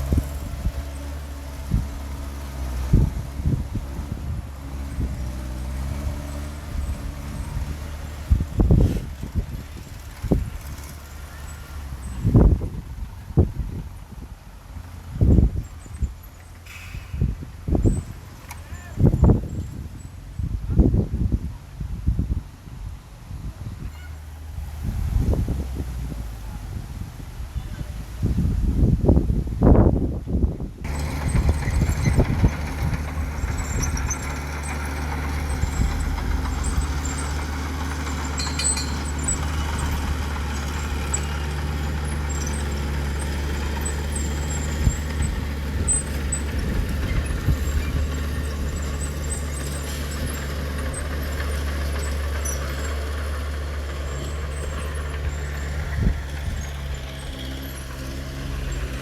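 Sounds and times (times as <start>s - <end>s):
heavy diesel engine running: 0.0s - 20.4s, 30.8s - 59.0s.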